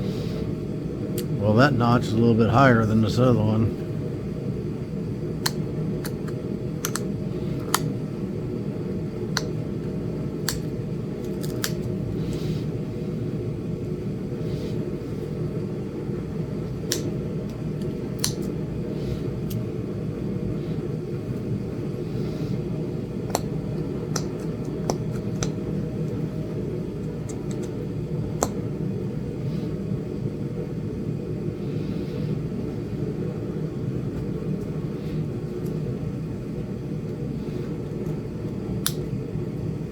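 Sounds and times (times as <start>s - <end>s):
steady low hum: 0.0s - 39.9s
stone flakes snapping clicks: 5.4s - 7.9s, 9.3s - 9.6s, 10.4s - 12.0s, 16.8s - 18.6s, 23.3s - 25.6s, 27.2s - 27.8s, 38.8s - 39.1s.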